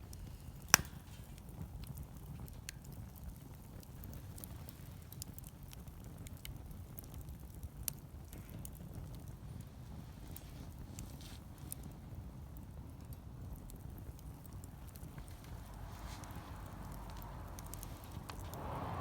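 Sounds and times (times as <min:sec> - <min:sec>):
wood fire crackling: 0:00.0 - 0:19.0
loud pop from fire: 0:00.2 - 0:01.7, 0:14.9 - 0:19.0
low steady rumble: 0:13.9 - 0:19.0.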